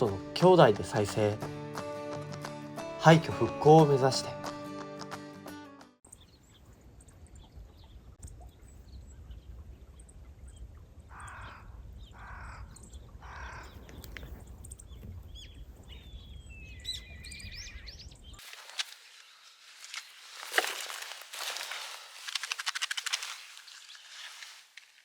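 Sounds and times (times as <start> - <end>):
small birds chirping: 6.1 - 24.7
crow cawing: 11.1 - 13.8.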